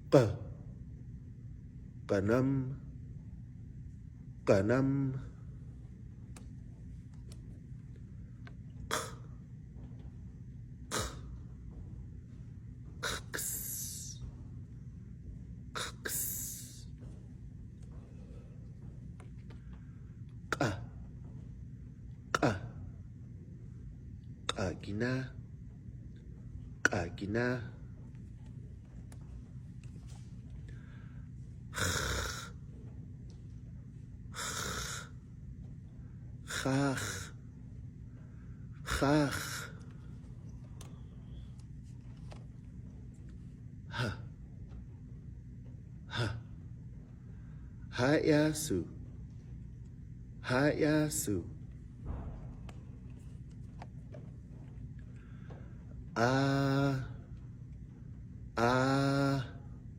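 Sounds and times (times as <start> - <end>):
low room hum: 0.0 - 59.9
person making breathy rasping hiss: 10.9 - 11.3, 31.7 - 32.6, 34.3 - 35.2
breathy puffs of air: 34.3 - 35.3.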